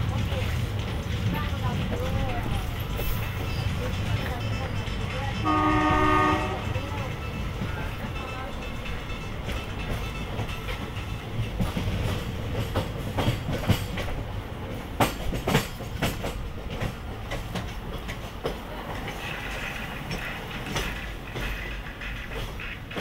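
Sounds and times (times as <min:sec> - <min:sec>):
train rumbling along track: 0:00.0 - 0:23.0
wheels clicking over rails: 0:06.6 - 0:23.0.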